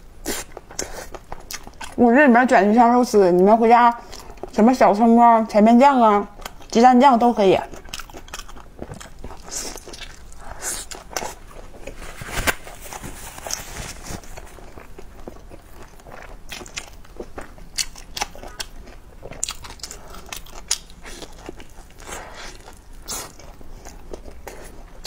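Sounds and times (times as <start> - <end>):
person chewing a wrap: 0.2 - 2.0, 7.7 - 25.0.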